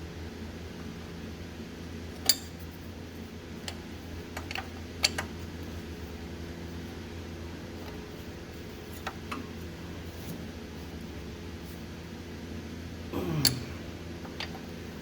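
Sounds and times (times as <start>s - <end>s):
steady low hum: 5.4s - 15.0s.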